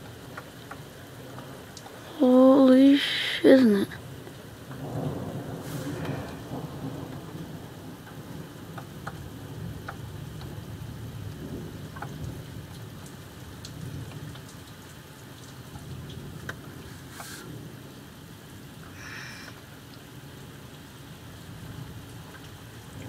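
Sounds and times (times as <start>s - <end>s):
heavy rain pouring: 0.0s - 23.0s
rolling thunder: 4.6s - 13.0s
drops ticking on a surface: 9.8s - 10.6s, 11.9s - 16.6s.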